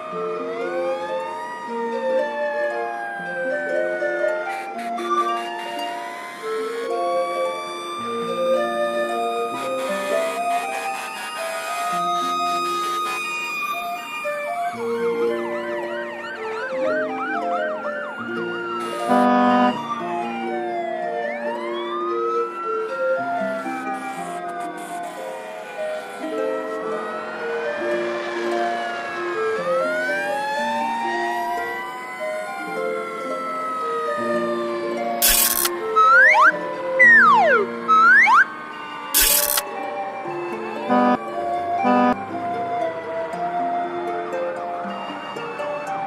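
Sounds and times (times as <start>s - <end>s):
keyboard melody: 0.0s - 24.6s, 25.4s - 46.0s
fire truck siren: 0.0s - 46.0s
simple music melody: 16.9s - 20.1s, 35.9s - 38.5s, 40.8s - 43.2s.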